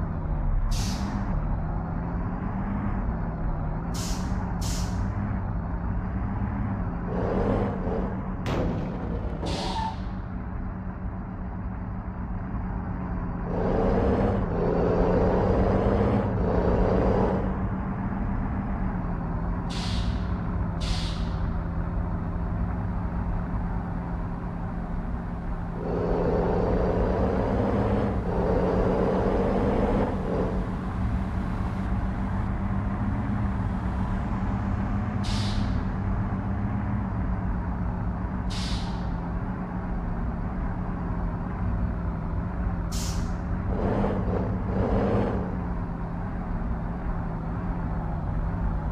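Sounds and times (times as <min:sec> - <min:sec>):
truck diesel engine running: 0:00.0 - 0:48.9
air brake hisses: 0:00.7 - 0:01.2, 0:04.0 - 0:05.0, 0:19.7 - 0:21.4, 0:35.2 - 0:35.9, 0:38.5 - 0:39.1, 0:42.9 - 0:43.4.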